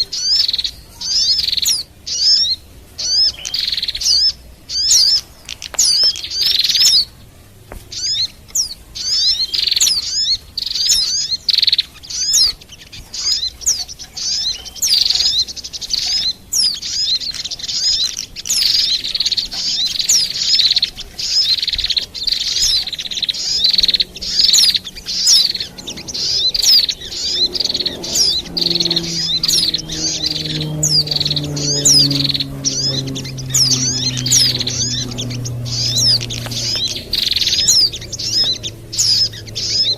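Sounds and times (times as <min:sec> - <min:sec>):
high bird chirps and twittering: 0:00.0 - 0:39.9
low hum sliding down: 0:23.7 - 0:39.9.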